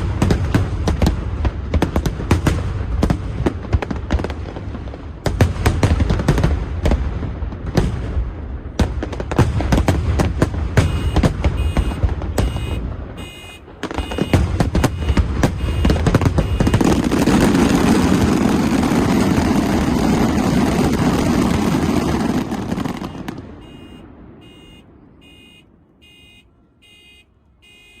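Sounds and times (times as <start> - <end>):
fireworks bursting: 0.0 - 26.4
faint high beep: 10.9 - 14.4, 23.6 - 28.0.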